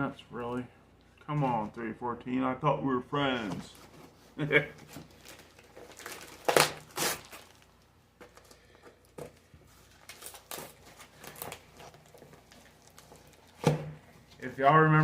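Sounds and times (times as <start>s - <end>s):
foam packing peanuts rustling: 3.6s - 15.0s.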